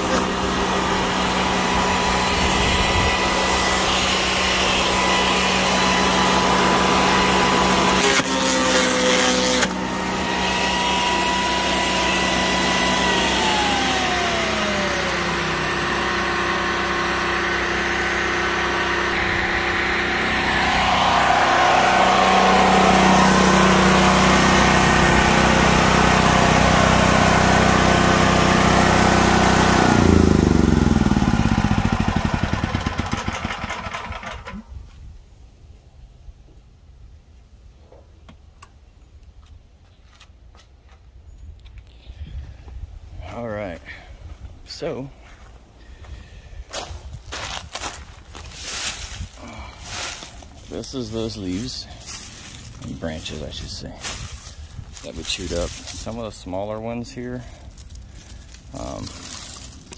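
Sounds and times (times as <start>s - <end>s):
gasoline generator running: 0.0s - 34.9s, 42.0s - 59.9s
electric wood chipper shredding branches: 0.0s - 35.1s, 43.3s - 59.9s.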